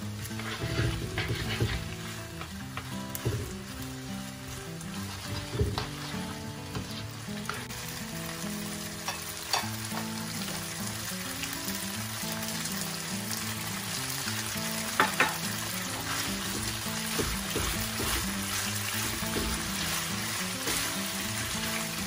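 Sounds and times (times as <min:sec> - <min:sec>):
spatula scraping a pan: 0:00.0 - 0:03.8, 0:04.4 - 0:07.7, 0:15.0 - 0:22.0
pasta sizzling in a pan: 0:00.0 - 0:22.0
spatula clicking against pan: 0:09.0 - 0:10.1.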